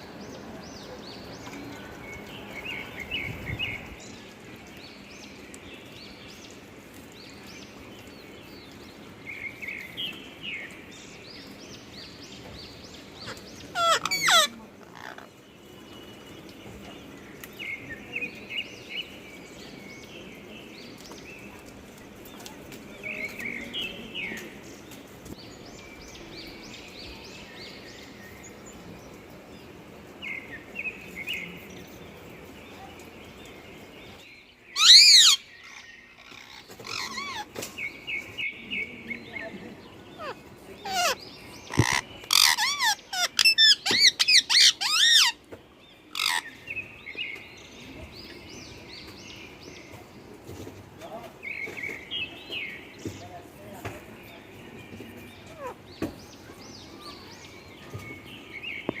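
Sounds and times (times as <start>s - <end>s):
parakeets screeching: 13.2s - 15.3s, 34.8s - 35.4s, 36.2s - 37.5s, 40.2s - 45.4s, 46.2s - 46.4s.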